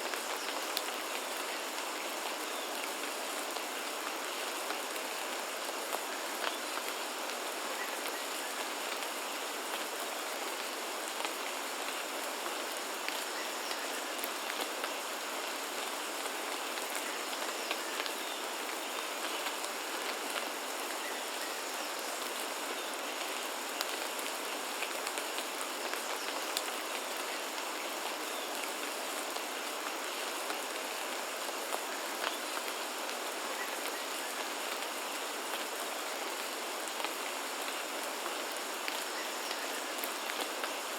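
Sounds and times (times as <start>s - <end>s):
rain drops ticking on surfaces: 0.0s - 40.9s.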